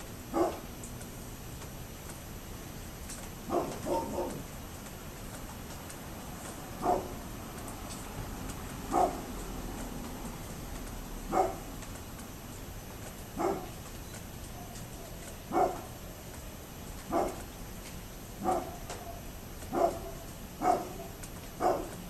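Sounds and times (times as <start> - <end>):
dog barking: 0.3 - 0.7, 3.4 - 4.5, 6.8 - 7.2, 8.9 - 9.3, 11.3 - 11.7, 13.4 - 13.8, 14.5 - 16.0, 17.1 - 17.5, 18.4 - 22.0.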